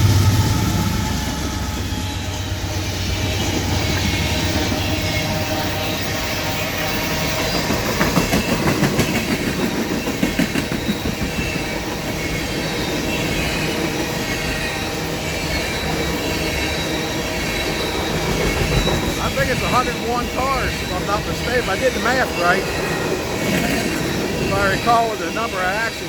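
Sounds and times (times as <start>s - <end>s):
train wheels rolling on rails: 0.0s - 26.0s
wheels clicking on rail joints: 1.2s - 26.0s
rails singing high tone: 14.1s - 26.0s.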